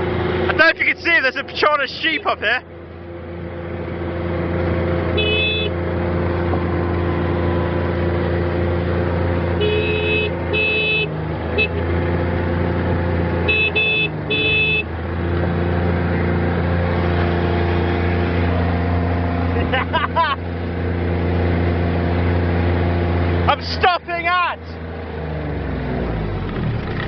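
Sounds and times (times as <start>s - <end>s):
vehicle engine running under load: 0.0s - 27.0s
vehicle horn toots: 5.1s - 5.8s, 9.6s - 11.9s, 13.4s - 14.9s.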